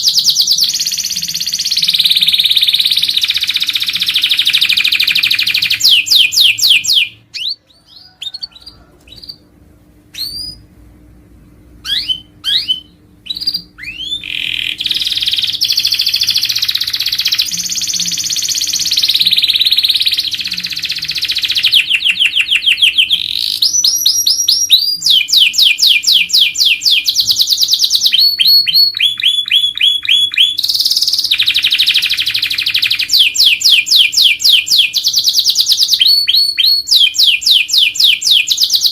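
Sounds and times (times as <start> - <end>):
canary singing trills: 0.0 - 9.5, 10.1 - 10.7, 11.8 - 38.9.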